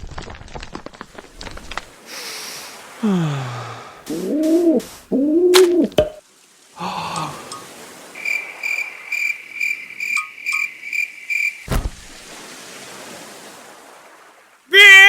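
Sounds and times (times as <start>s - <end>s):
cartoon cricket chirps: 8.2s - 11.6s.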